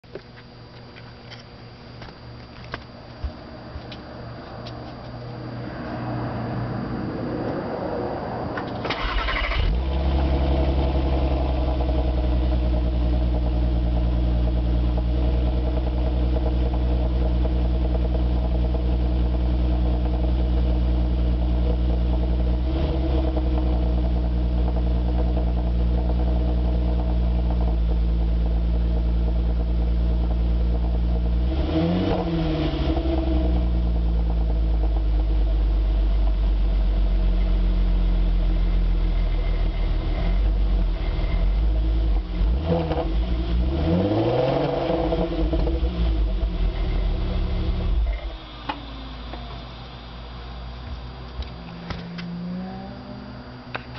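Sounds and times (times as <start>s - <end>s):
car engine starting and idling: 0.0s - 53.9s
engine throttle blip: 8.5s - 11.7s.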